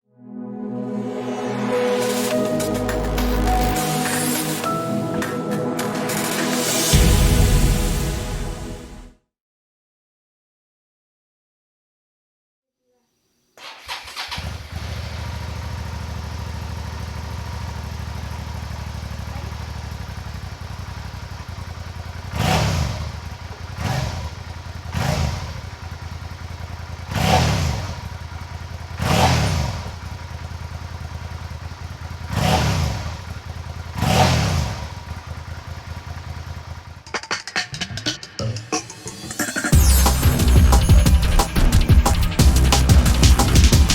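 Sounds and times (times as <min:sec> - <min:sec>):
motorcycle engine idling: 0:14.0 - 0:37.2.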